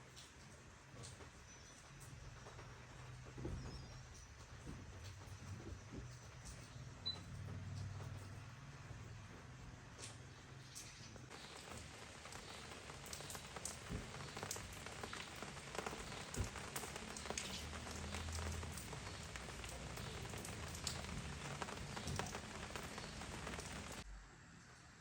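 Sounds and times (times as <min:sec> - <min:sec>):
heavy rain: 0:11.2 - 0:24.1.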